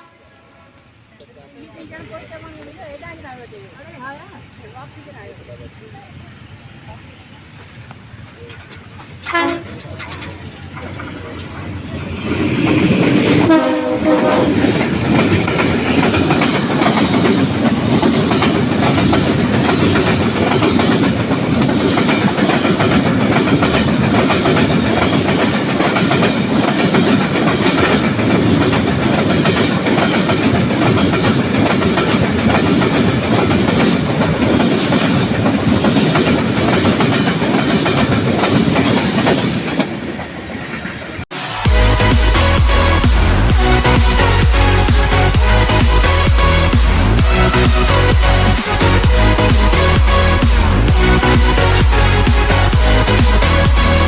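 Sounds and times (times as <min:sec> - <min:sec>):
train horn blast: 0:00.0 - 0:01.0, 0:09.2 - 0:09.8, 0:13.4 - 0:14.8
train wheels clattering: 0:07.6 - 0:54.0.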